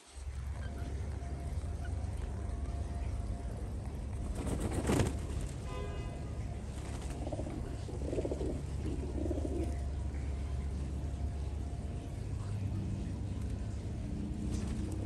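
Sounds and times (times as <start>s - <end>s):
birds cooing: 6.6s - 10.1s.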